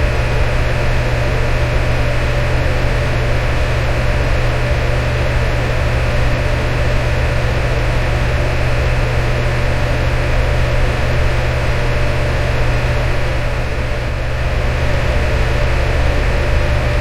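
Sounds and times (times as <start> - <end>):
electric fan whooshing: 0.0 - 6.4, 11.4 - 17.0
fan motor hum: 0.0 - 17.0.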